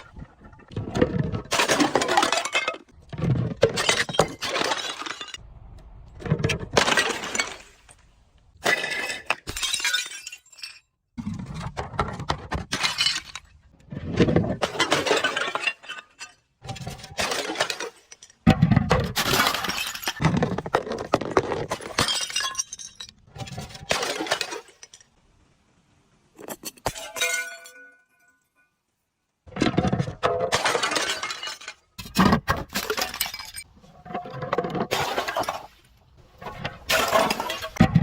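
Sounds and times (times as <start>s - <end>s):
glass bottles smashing: 1.5s - 5.4s, 6.7s - 7.9s, 8.6s - 10.9s, 12.7s - 13.6s, 14.6s - 18.3s, 19.1s - 20.4s, 21.6s - 25.0s, 26.4s - 28.4s, 30.3s - 33.7s, 34.8s - 35.7s, 36.9s - 38.0s.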